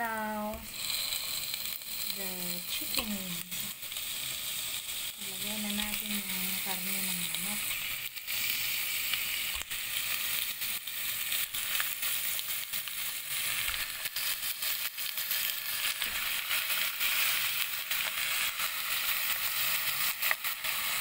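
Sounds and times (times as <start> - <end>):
chicken frying in hot oil: 0.0 - 21.0.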